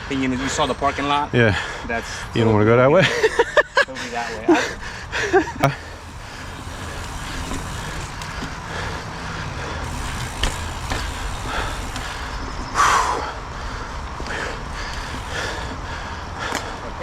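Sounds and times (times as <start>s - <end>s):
bike knocking: 4.8s - 13.1s, 13.9s - 17.0s
bike tyres rumbling on dirt: 4.8s - 17.0s.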